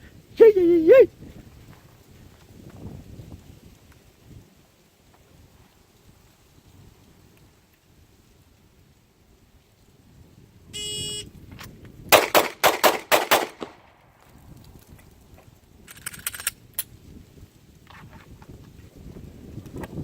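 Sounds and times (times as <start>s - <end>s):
rapid pistol shots: 12.1s - 13.9s.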